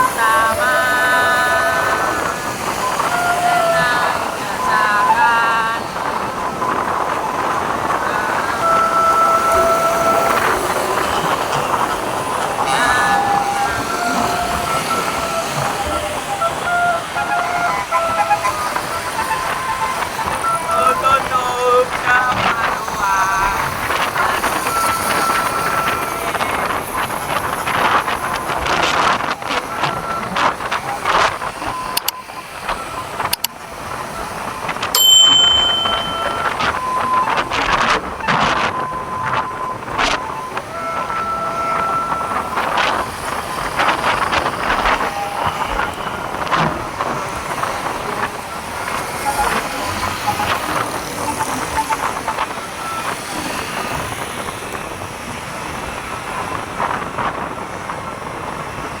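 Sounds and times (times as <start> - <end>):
passing vehicles: 0.0 - 59.0
roadside traffic: 0.0 - 59.0
wind on microphone: 0.0 - 59.0
high steady tone: 34.9 - 37.4, 47.9 - 54.1.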